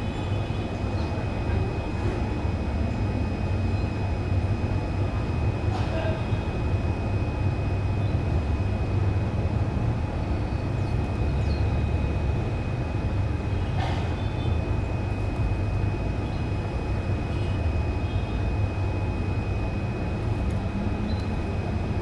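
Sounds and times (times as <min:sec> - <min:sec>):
low steady rumble: 0:08.4 - 0:22.0.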